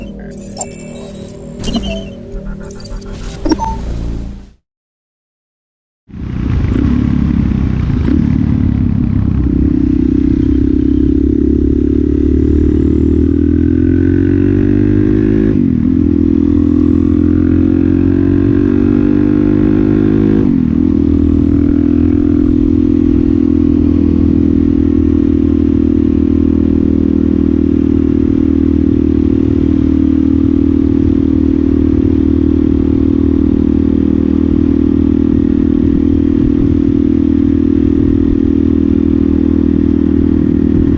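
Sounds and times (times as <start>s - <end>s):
motorcycle engine running: 6.1s - 14.7s, 20.5s - 40.9s.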